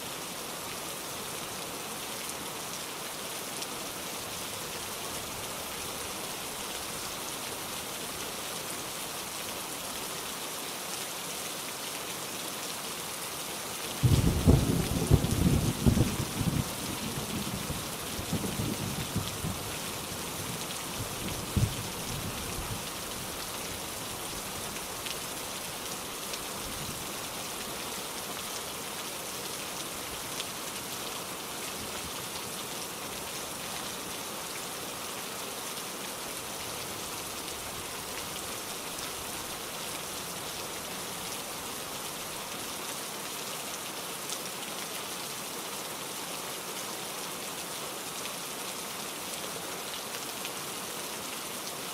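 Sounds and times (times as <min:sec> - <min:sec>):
steady rain hiss: 0:00.0 - 0:51.9
low thunder rumble: 0:14.0 - 0:17.7.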